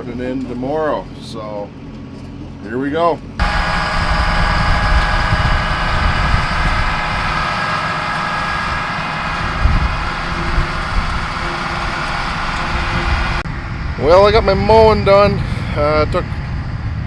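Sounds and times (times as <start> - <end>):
tractor engine rumble: 3.2 - 16.5
steady whining tones: 3.4 - 17.0.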